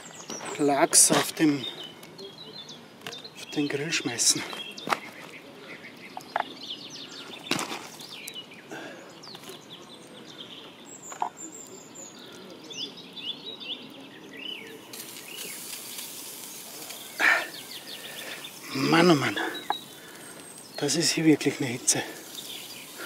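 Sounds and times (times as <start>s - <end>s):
birds chirping: 0.0s - 23.0s
campfire popping: 0.0s - 23.0s
steady hiss: 14.6s - 23.0s.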